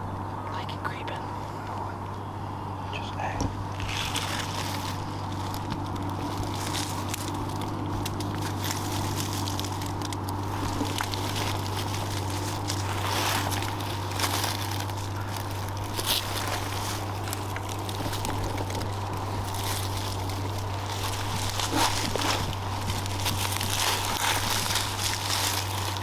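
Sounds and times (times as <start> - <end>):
steady low hum: 0.0 - 26.0
footsteps crackling through dry leaves: 3.0 - 26.0.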